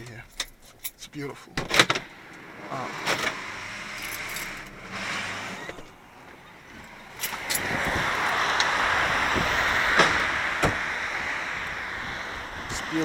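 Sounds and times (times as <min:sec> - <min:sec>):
wind rushing: 0:02.2 - 0:13.0
car door clicks and knocks: 0:10.0 - 0:10.8.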